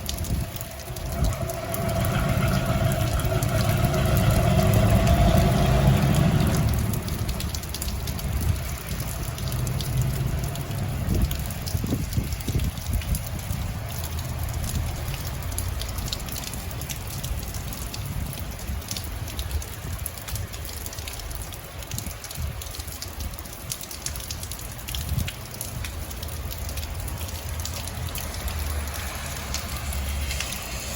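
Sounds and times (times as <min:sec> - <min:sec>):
passing vehicle: 0:00.0 - 0:18.5, 0:26.2 - 0:30.9
steady rain falling: 0:00.0 - 0:30.9.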